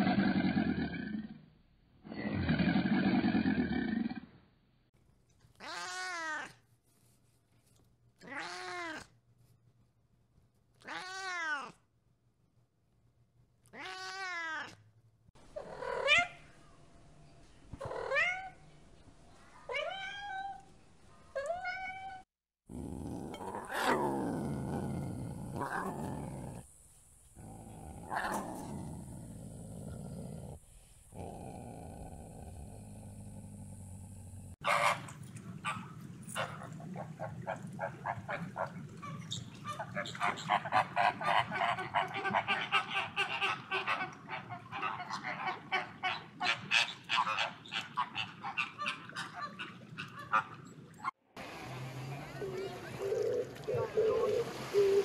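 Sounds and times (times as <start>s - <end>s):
cat meowing: 5.6s - 6.5s, 8.2s - 9.1s, 10.8s - 11.8s, 13.7s - 14.8s
lions growling: 22.7s - 26.7s, 27.4s - 34.6s.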